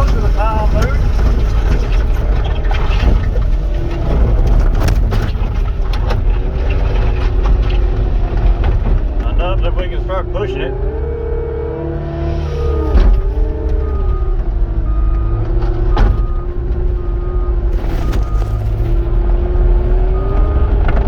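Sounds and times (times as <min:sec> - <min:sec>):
diesel engine under load: 0:00.0 - 0:21.0
hydraulic whine: 0:09.7 - 0:16.6
backup alarm beeping: 0:12.1 - 0:19.0.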